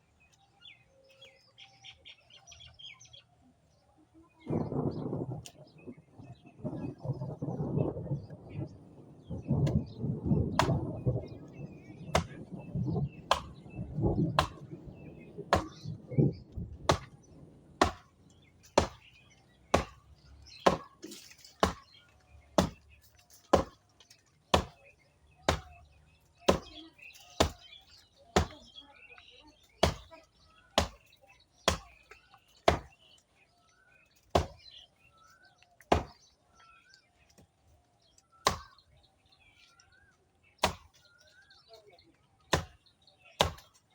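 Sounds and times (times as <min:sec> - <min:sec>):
birds chirping: 0:00.0 - 0:43.9
blade chopping branches: 0:10.5 - 0:12.5, 0:13.2 - 0:16.0, 0:16.8 - 0:28.7, 0:29.8 - 0:30.2, 0:30.8 - 0:33.2, 0:34.1 - 0:34.8, 0:35.8 - 0:36.4, 0:38.2 - 0:39.0, 0:40.5 - 0:41.2, 0:42.4 - 0:43.9.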